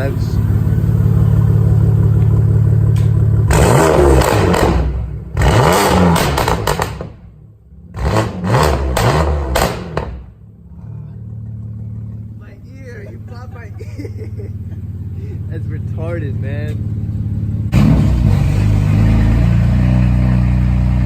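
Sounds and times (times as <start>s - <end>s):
car engine idling: 0.0s - 21.0s
car engine revving: 0.0s - 21.0s.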